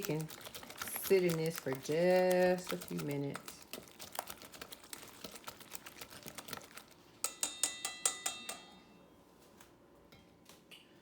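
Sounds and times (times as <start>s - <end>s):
whisk clicking against bowl: 0.0s - 8.6s.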